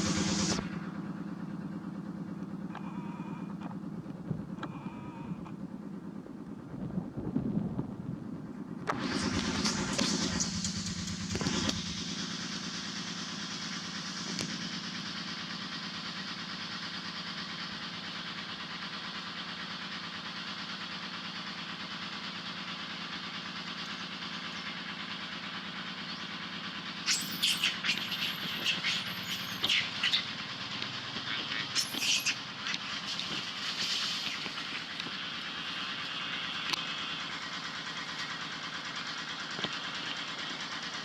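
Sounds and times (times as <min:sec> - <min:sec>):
motor drone: 0:00.0 - 0:17.8, 0:22.8 - 0:41.0
baby monkey crying: 0:27.1 - 0:30.5, 0:31.2 - 0:34.9.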